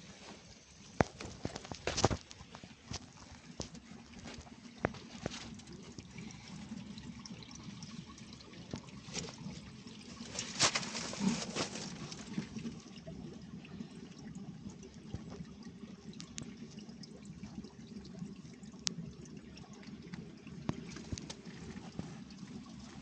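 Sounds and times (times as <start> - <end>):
water trickling: 0.0 - 23.0.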